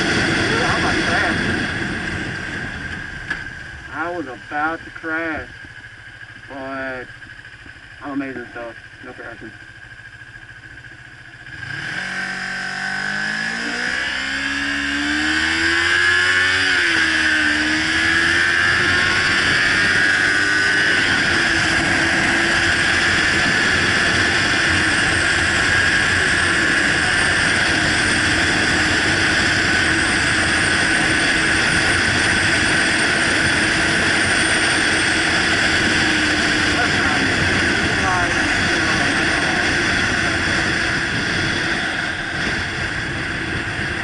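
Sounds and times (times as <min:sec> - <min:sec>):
wind noise: 0:00.0 - 0:04.0, 0:14.5 - 0:44.0
motorcycle engine accelerating: 0:00.0 - 0:44.0.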